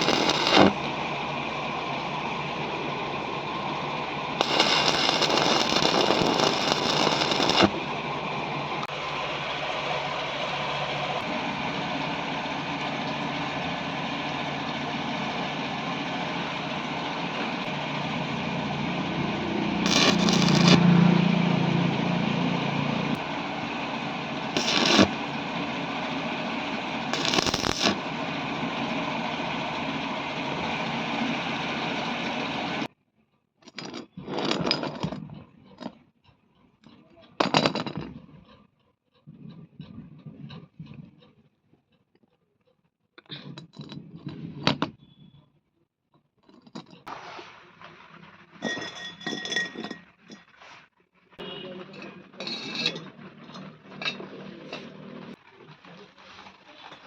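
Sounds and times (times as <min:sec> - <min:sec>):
loud noisy bursts: 0:00.0 - 0:01.2, 0:03.8 - 0:08.2, 0:17.6 - 0:21.0, 0:22.4 - 0:32.9
machine running: 0:00.0 - 0:32.9.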